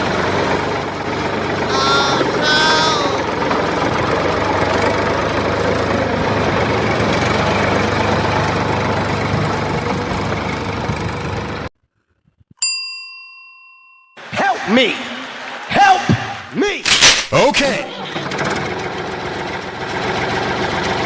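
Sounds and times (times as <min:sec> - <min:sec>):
engine idling: 0:00.0 - 0:11.7, 0:17.7 - 0:21.0.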